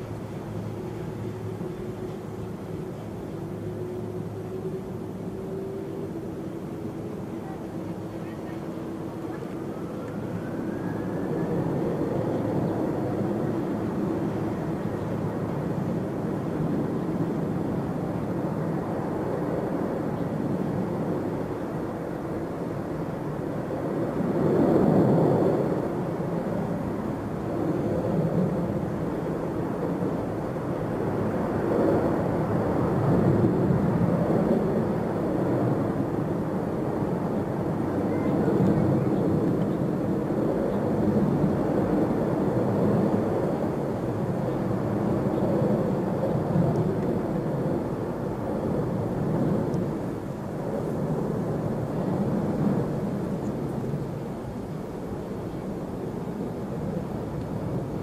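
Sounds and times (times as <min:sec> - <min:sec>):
jet engines rumbling: 0:00.0 - 0:58.0
faint rising whine: 0:08.9 - 0:17.6.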